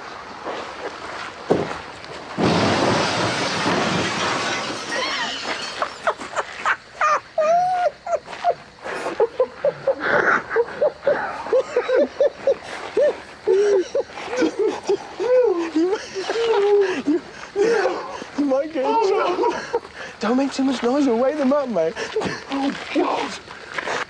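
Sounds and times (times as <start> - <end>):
car crashing into wooden building: 2.4 - 6.0
shrill laughter: 4.9 - 18.2, 18.8 - 19.9.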